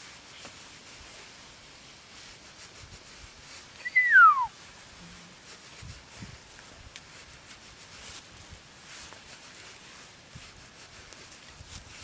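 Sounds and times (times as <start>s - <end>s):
faint woodland background: 0.0s - 12.0s
bird call sliding down: 3.8s - 4.6s.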